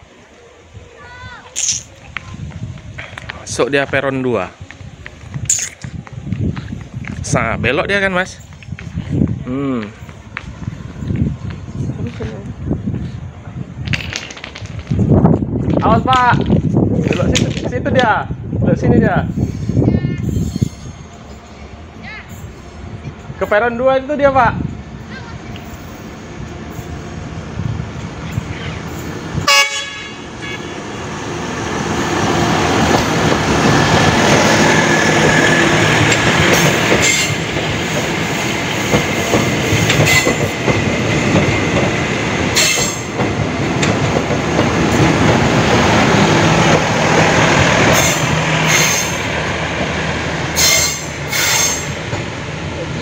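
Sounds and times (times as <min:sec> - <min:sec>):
train rumbling past: 0:00.0 - 0:53.0
wheels clacking over rail joints: 0:01.6 - 0:18.2, 0:25.0 - 0:53.0
train horn blast: 0:29.4 - 0:30.9, 0:50.6 - 0:51.9.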